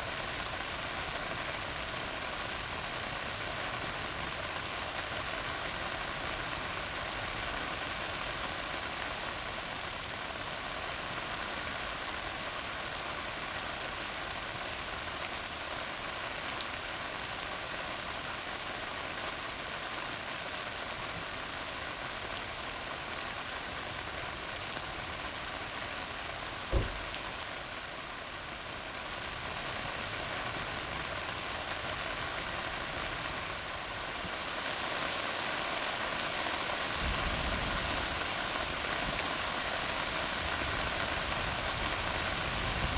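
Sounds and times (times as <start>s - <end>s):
rain on a road: 0.0s - 42.9s
sharp low thump: 26.7s - 27.4s.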